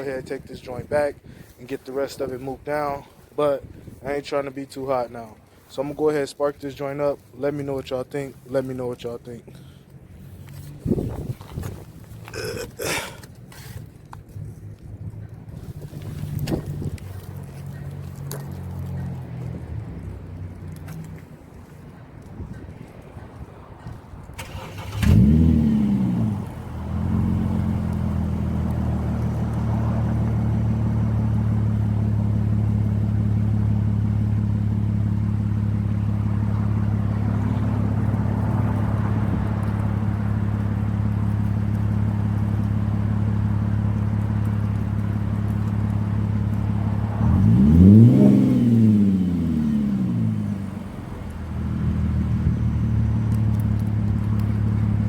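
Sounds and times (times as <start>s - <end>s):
car engine revving and idling: 24.4s - 55.0s.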